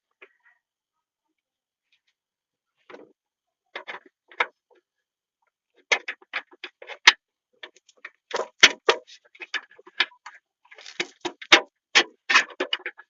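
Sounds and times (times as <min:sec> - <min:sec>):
sharp clicks and knocks: 0:05.9 - 0:13.0.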